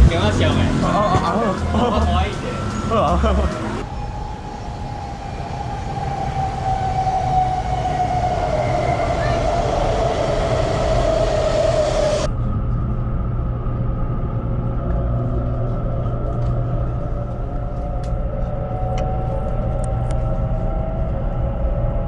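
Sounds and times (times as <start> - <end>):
train rushing past: 0.0 - 12.7
train low rumble: 0.0 - 22.0
train motor whine rising: 2.2 - 22.0.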